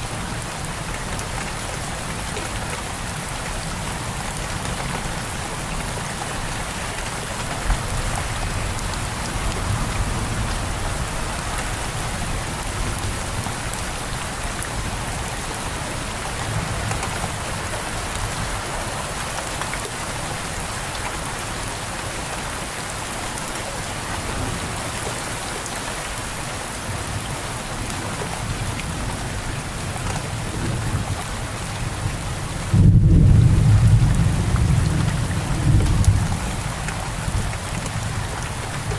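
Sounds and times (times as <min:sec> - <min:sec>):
steady rain falling: 0:00.0 - 0:38.9
deep rumble of thunder: 0:32.0 - 0:38.9.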